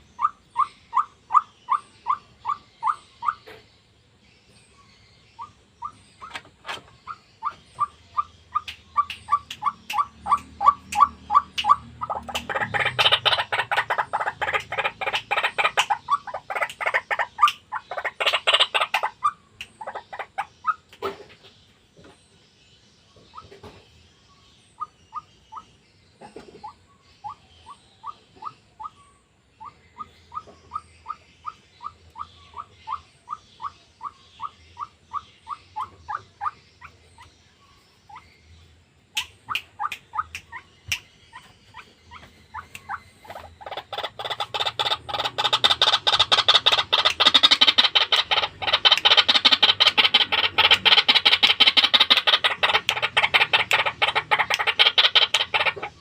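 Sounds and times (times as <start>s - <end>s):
waterhen calling: 0.0s - 3.6s, 5.4s - 21.0s, 39.2s - 56.0s.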